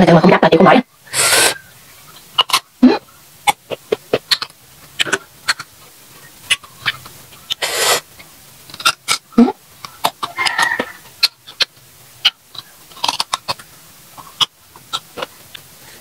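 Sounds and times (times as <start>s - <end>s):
short breathy hiss: 1.0s - 1.7s, 7.6s - 8.1s
crunchy fruit being chewed: 1.2s - 16.0s.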